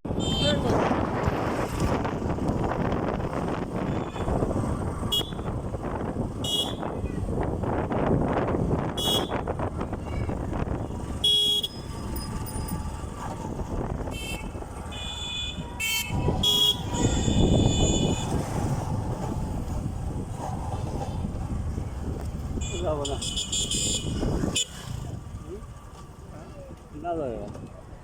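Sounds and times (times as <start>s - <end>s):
motorcycle riding on road: 0.0s - 28.0s
vehicle horns tooting: 0.1s - 0.8s, 3.8s - 5.6s, 6.3s - 7.1s, 8.8s - 9.5s, 10.8s - 12.8s, 14.1s - 18.6s, 22.6s - 25.0s.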